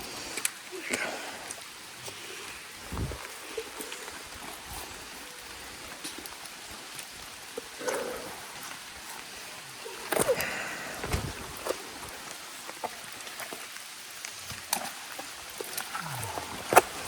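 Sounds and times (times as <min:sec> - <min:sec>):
rain hissing: 0:00.0 - 0:17.0.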